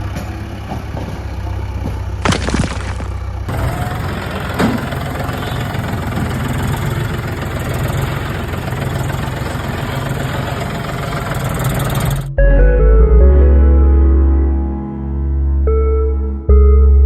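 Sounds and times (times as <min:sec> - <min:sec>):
engine idling: 0:00.0 - 0:12.4
music: 0:12.3 - 0:17.0.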